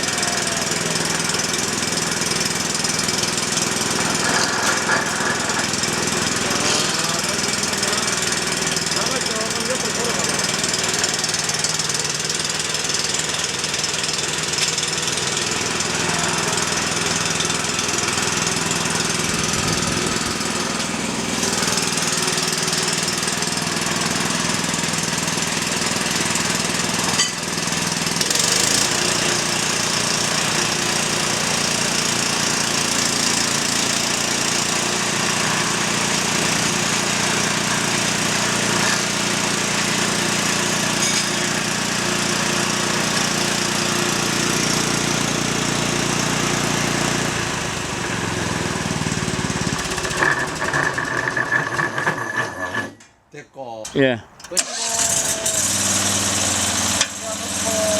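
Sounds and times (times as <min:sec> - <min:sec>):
diesel engine running: 0:00.0 - 0:50.8, 0:54.6 - 0:57.9.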